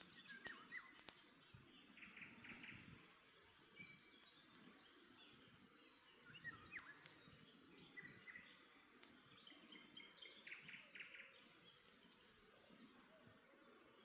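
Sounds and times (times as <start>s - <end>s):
campfire crackling and popping: 0.0s - 10.2s, 11.7s - 12.5s
birds chirping and trilling: 0.0s - 14.0s.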